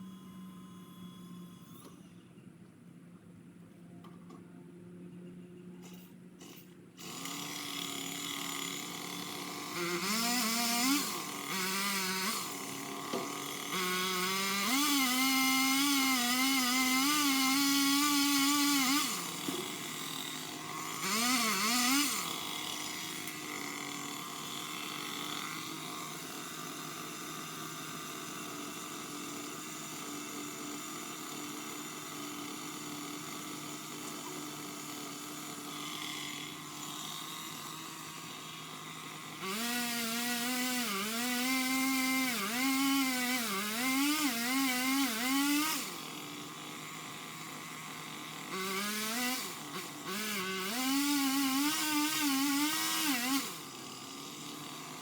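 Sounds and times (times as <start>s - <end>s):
power limb cutter revving: 0.0s - 2.0s, 5.8s - 55.0s
chain cutting wood: 5.8s - 55.0s.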